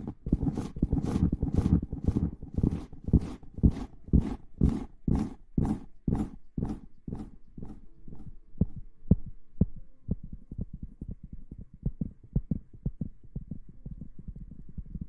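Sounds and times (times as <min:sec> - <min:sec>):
soft brushing on microphone: 0:00.0 - 0:08.3
low muffled thumps: 0:00.0 - 0:15.0.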